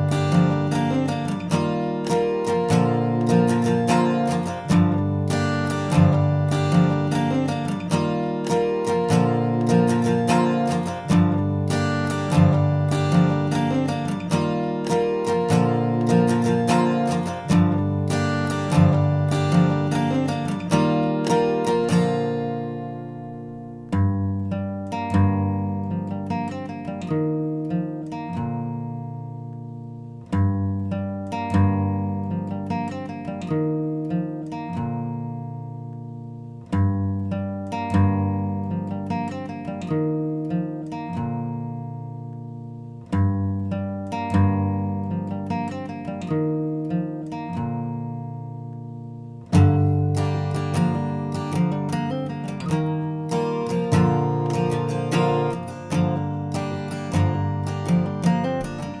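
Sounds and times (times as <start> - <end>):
acoustic guitar picking: 0.0 - 59.0.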